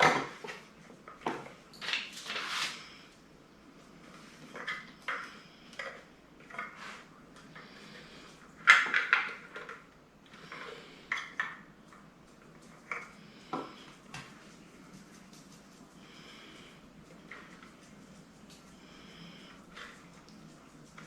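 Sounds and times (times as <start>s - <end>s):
plastic parts clicking and clattering: 8.6s - 9.9s.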